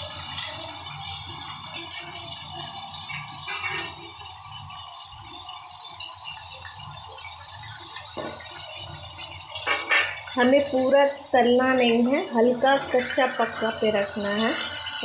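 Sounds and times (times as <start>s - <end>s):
chicken sizzling in oil: 0.0s - 15.0s
metal clink against pan: 1.8s - 2.3s.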